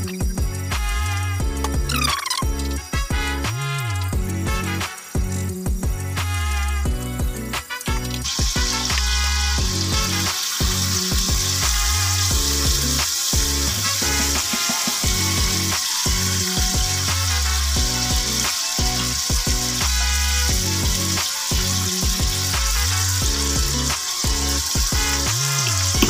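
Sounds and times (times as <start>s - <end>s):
background music with bass line: 0.0s - 26.0s
spring rolls sizzling in a pan: 7.4s - 26.0s.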